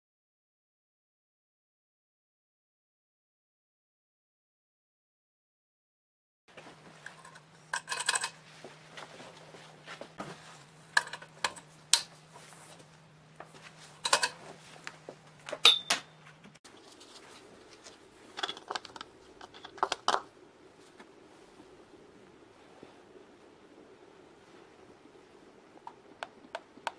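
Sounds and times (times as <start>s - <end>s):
steady low hum: 6.5s - 26.9s
metal parts and tools clinking: 7.0s - 8.5s, 10.9s - 11.7s, 14.0s - 14.4s, 15.6s - 16.2s.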